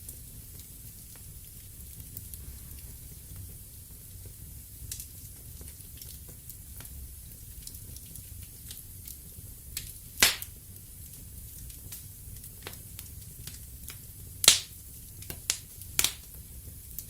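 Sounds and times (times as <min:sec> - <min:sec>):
wood fire crackling: 0:00.0 - 0:17.0
loud pop of fire: 0:10.2 - 0:10.6, 0:14.4 - 0:16.4.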